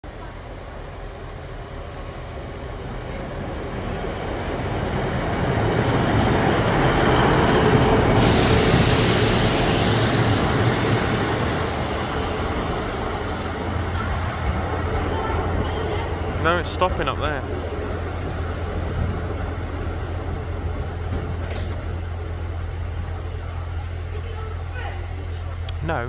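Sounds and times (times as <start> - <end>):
train approaching: 0.0 - 26.0
sudden hiss: 8.1 - 14.4.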